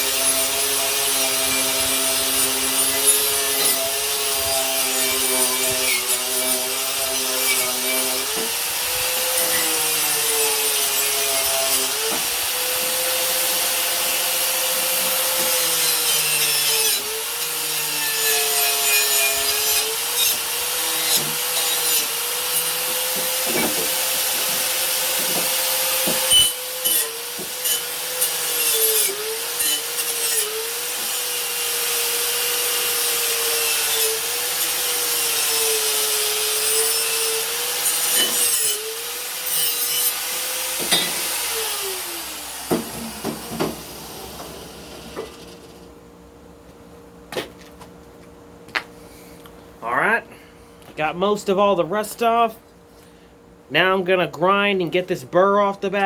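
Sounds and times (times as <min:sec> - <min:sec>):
power tool scrubbing metal: 0:00.0 - 0:45.7.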